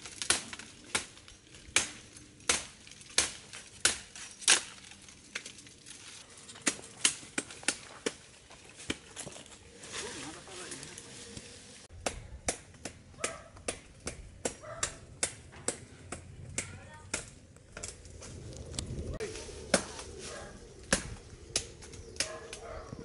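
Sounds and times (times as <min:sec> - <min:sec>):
blade chopping wood: 0:00.1 - 0:04.9.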